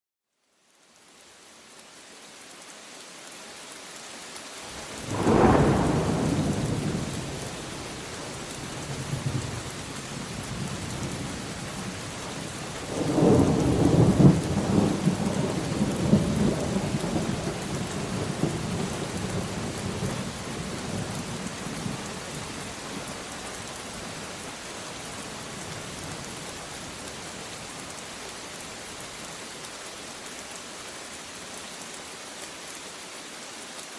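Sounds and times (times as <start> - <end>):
steady rain: 0.3 - 33.9
thunder rolling: 5.0 - 7.7.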